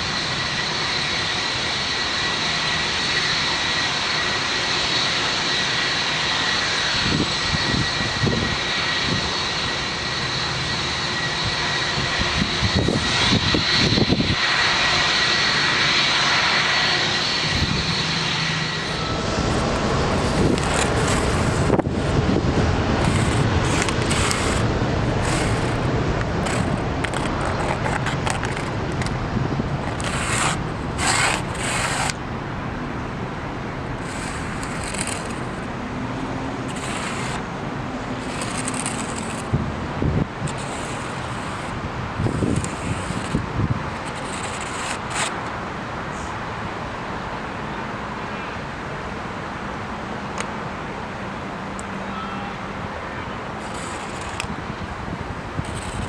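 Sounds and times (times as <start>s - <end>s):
jet engine rushing noise: 0.0s - 46.3s, 53.4s - 56.0s
high-pitched engine whine: 0.0s - 48.8s, 50.9s - 56.0s
rough crackling jet rush: 11.3s - 46.3s, 53.4s - 56.0s.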